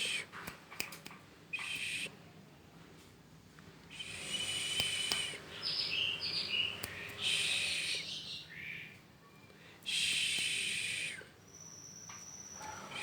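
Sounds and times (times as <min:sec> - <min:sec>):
songbird harsh rasping song: 0:01.5 - 0:02.2, 0:03.9 - 0:13.0.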